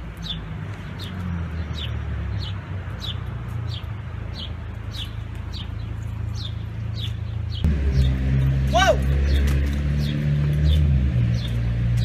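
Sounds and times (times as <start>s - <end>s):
bird chirping: 0.2s - 8.3s.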